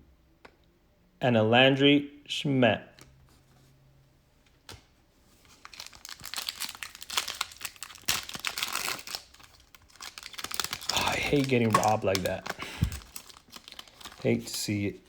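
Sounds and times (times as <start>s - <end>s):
plastic wrapper crinkling and tearing: 5.5s - 15.0s.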